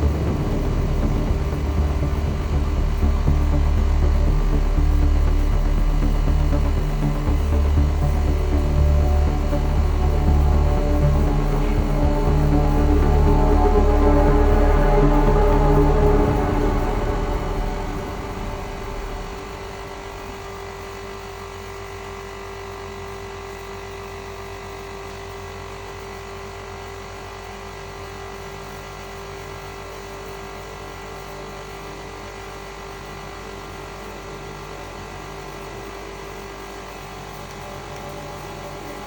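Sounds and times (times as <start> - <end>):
steady mid-pitched whine: 0.0 - 22.4.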